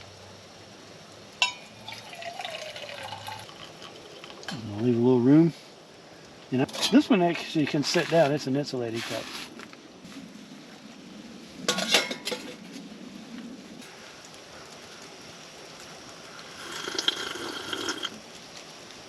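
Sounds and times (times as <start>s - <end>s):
cookware and cup clinking: 1.4s - 4.6s, 11.7s - 12.5s.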